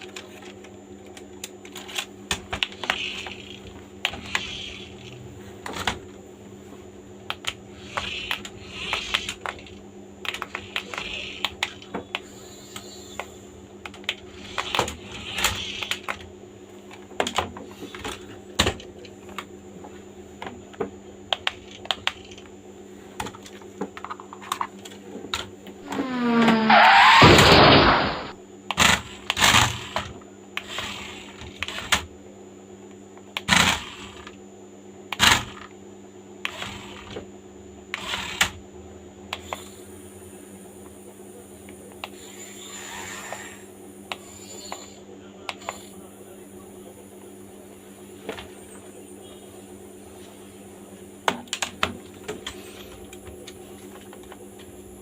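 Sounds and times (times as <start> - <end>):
steady low hum: 0.0 - 55.0
plastic toy car clicks and rattles: 7.3 - 11.9.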